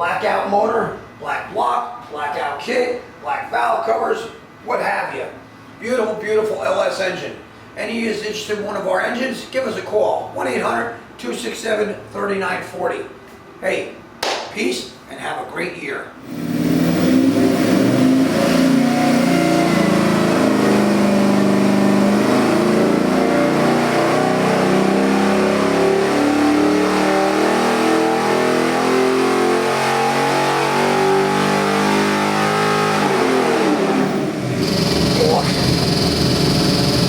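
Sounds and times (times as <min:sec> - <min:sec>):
engine running at high revs: 0:16.2 - 0:37.0.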